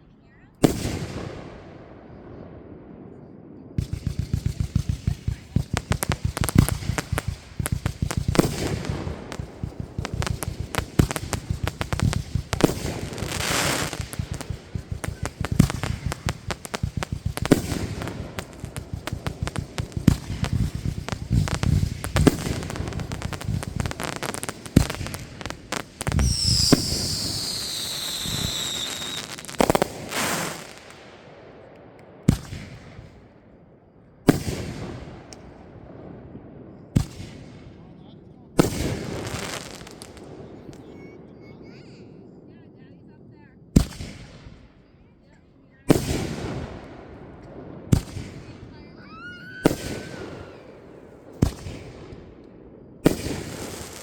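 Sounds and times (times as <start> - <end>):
fireworks cracks and bangs: 0.6 - 1.9, 3.4 - 33.3, 34.2 - 42.0, 43.3 - 44.8, 45.9 - 54.0
falling firework whistles: 3.8 - 31.0, 47.9 - 52.2, 52.9 - 54.0.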